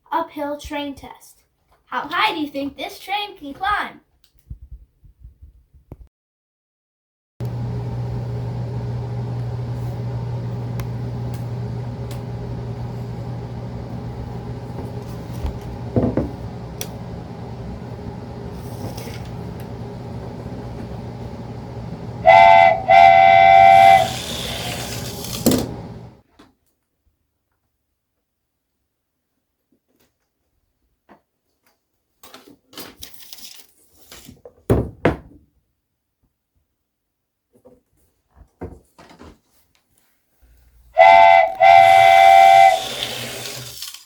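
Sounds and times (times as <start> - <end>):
toy train motor hum: 10.8 - 26.2, 41.0 - 44.0
toy train whistle: 21.0 - 26.0, 41.0 - 44.0.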